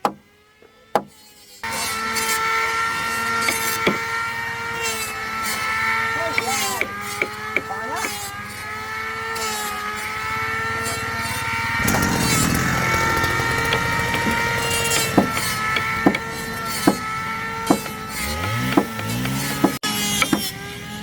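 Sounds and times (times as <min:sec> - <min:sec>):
power tool cutting wood: 0:00.0 - 0:21.0
power tool motor whine: 0:00.0 - 0:21.0
sharp knocks: 0:01.0 - 0:01.2, 0:03.4 - 0:04.1, 0:11.8 - 0:20.5.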